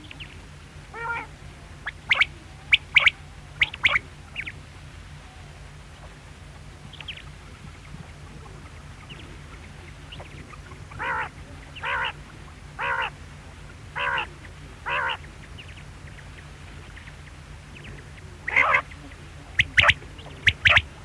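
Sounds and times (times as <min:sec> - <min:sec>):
quail calling: 0:00.0 - 0:04.6, 0:05.4 - 0:21.0
steady low hum: 0:00.0 - 0:21.0
high chirps: 0:19.6 - 0:20.9.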